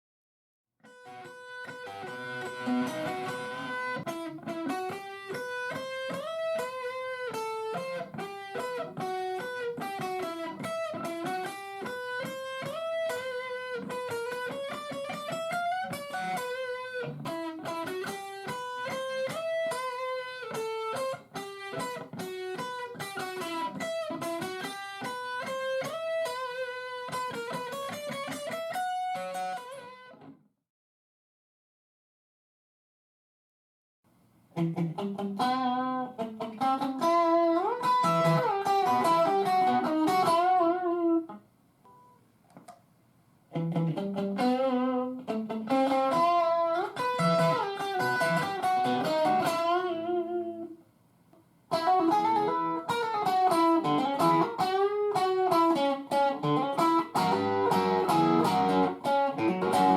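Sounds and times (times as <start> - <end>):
clean guitar melody: 0.8 - 30.3, 34.6 - 42.1, 43.5 - 50.8, 51.7 - 59.9.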